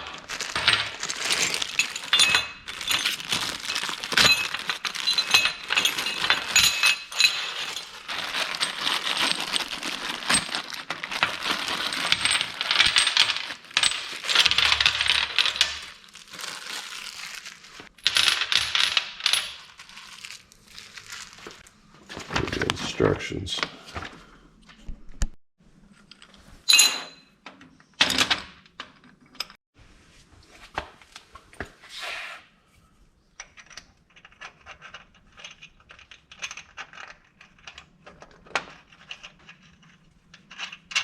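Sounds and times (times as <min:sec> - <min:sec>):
steel parts clinking: 0:00.4 - 0:16.0.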